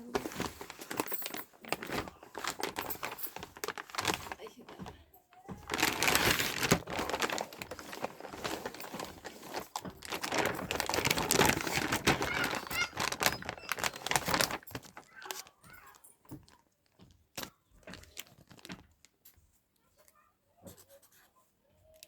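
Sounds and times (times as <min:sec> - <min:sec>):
plastic and card crinkling: 0:00.0 - 0:20.2.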